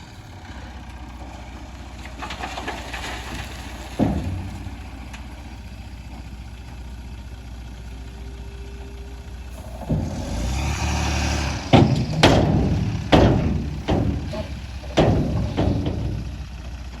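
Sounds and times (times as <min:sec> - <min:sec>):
heavy diesel engine running: 0:00.0 - 0:17.0
sharp metallic bangs: 0:09.6 - 0:16.6.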